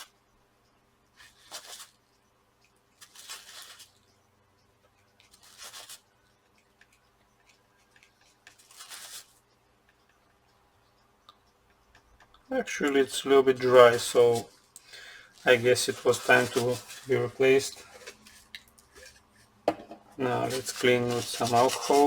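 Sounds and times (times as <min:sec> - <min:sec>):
thermal paste scraping: 0:15.4 - 0:19.2, 0:20.2 - 0:22.0.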